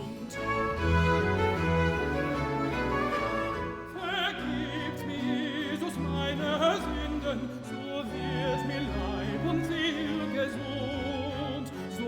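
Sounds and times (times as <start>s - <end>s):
baroque string ensemble: 0.0s - 12.0s.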